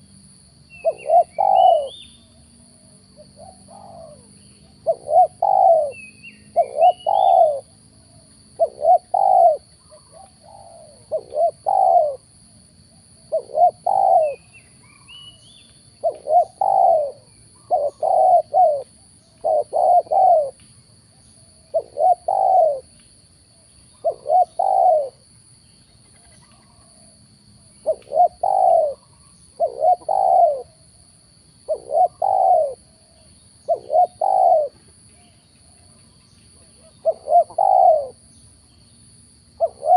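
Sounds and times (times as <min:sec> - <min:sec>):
small bird chirping: 0:00.0 - 0:02.5, 0:03.2 - 0:12.2, 0:13.3 - 0:23.0, 0:23.6 - 0:27.0, 0:27.7 - 0:30.8, 0:31.6 - 0:39.9
doves cooing: 0:00.8 - 0:12.3, 0:13.3 - 0:15.1, 0:16.0 - 0:20.6, 0:21.5 - 0:22.9, 0:24.0 - 0:25.2, 0:26.0 - 0:30.8, 0:31.7 - 0:36.0, 0:36.6 - 0:38.2, 0:39.6 - 0:39.9.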